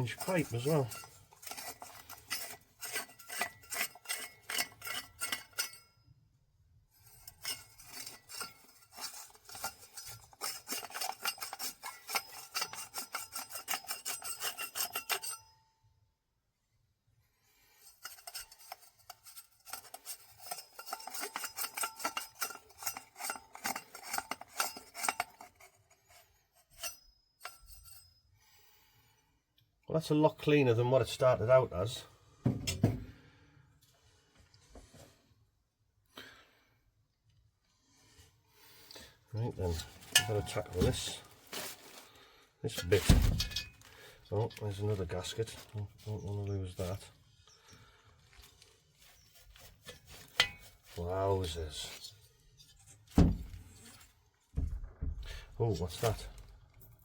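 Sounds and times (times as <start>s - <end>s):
stiff brush scrubbing metal: 0.0s - 5.8s, 7.0s - 15.5s, 17.6s - 28.0s, 39.4s - 42.0s, 42.7s - 54.7s.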